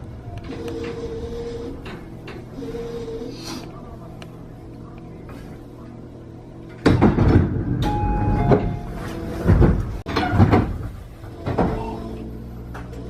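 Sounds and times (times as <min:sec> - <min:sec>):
train sliding doors thumping: 0:06.7 - 0:13.0
door chime tones: 0:07.8 - 0:09.0.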